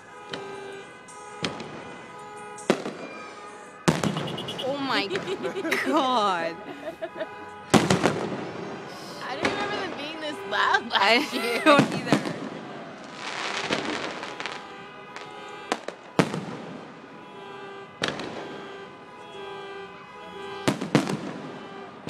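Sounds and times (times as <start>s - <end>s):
fireworks booming: 2.6s - 6.1s, 7.4s - 10.3s, 11.4s - 17.2s, 18.0s - 18.6s, 20.4s - 22.0s
fireworks crackling: 2.6s - 6.5s, 7.6s - 17.0s, 20.7s - 21.6s.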